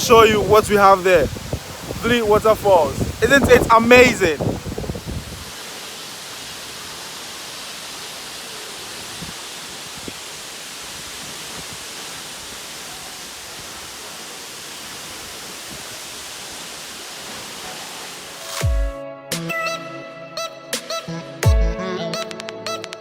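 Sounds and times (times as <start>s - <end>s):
waterfall rushing: 0.0s - 18.7s.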